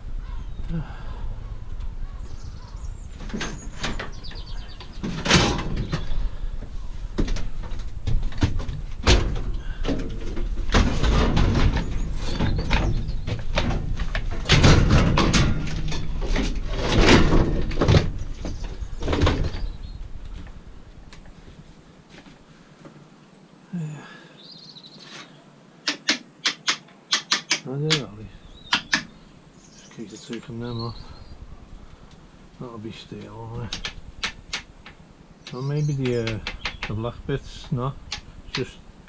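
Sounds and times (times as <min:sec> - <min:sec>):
metal clanking and scraping: 0:03.2 - 0:06.2, 0:07.2 - 0:19.7.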